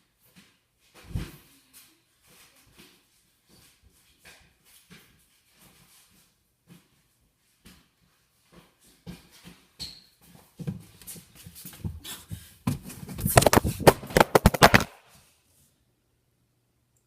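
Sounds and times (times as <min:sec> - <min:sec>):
knocks and rustling: 0:12.7 - 0:15.0
fast loud clatter: 0:13.2 - 0:15.0.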